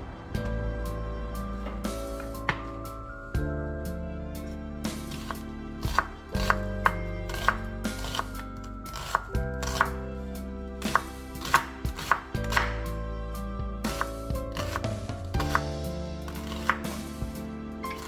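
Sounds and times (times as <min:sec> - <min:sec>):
soft background music: 0:00.0 - 0:18.0
knife chopping on cutting board: 0:07.3 - 0:08.2, 0:10.9 - 0:12.7, 0:13.9 - 0:15.6.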